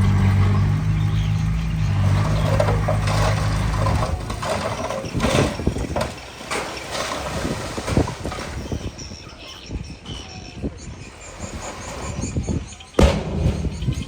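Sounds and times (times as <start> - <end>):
heavy machinery knocks and clunks: 0.0 - 7.2, 13.0 - 14.0.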